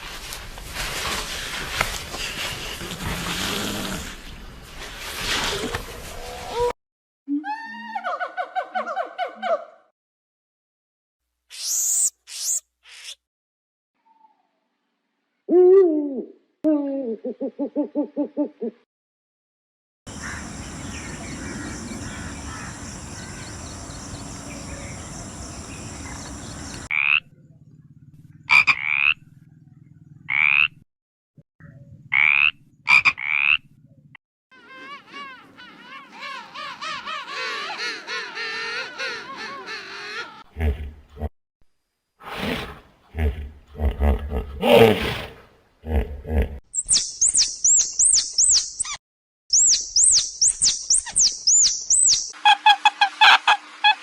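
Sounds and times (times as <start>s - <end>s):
warbling calls: 20.1s - 27.2s
falling animal call: 34.6s - 40.8s
rhythmic pulsed call: 46.8s - 49.0s, 49.6s - 52.4s
short rising calls: 46.8s - 49.0s, 49.6s - 52.3s.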